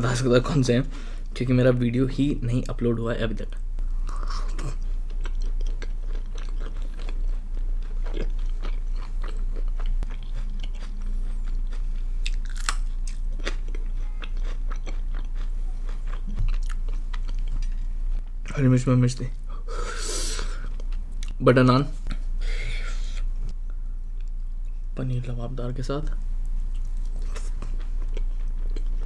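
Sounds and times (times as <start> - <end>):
man chewing food: 3.9 - 18.4, 19.7 - 21.4, 24.0 - 24.8, 26.5 - 29.0.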